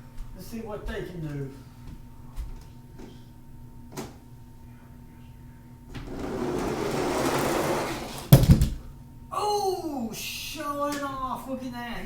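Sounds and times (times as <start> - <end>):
toy truck rolling on plastic track: 6.0 - 8.4.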